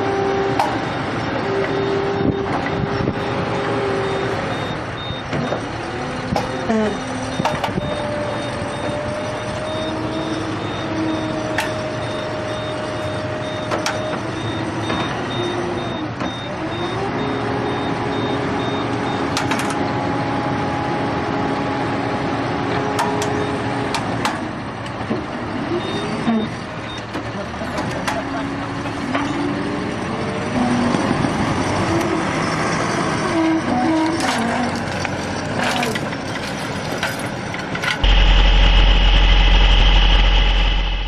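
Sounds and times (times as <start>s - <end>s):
heavy vehicle engine running: 0.0s - 41.0s
high-pitched beeping: 38.0s - 41.0s.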